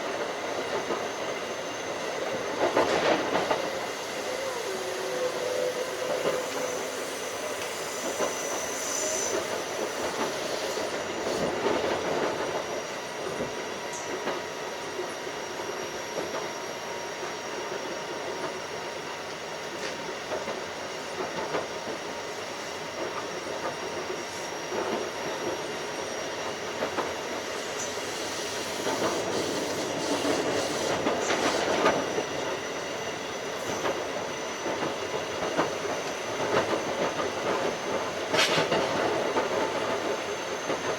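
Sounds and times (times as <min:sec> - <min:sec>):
train wheels rumbling on rail: 0:00.0 - 0:40.9
rail joint clicks: 0:02.2 - 0:12.7, 0:23.0 - 0:40.9.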